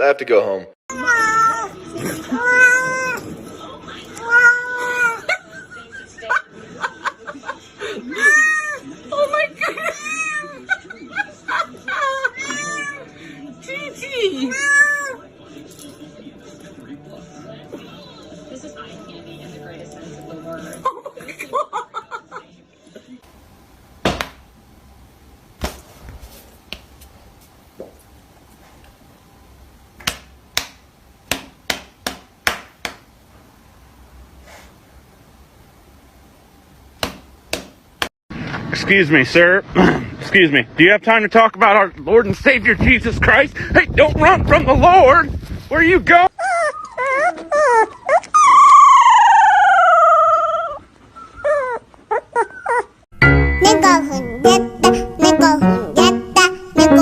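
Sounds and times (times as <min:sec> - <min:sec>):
music: 0:15.2 - 0:20.8, 0:53.2 - 0:57.0
dog howling and yipping: 0:46.4 - 0:53.0.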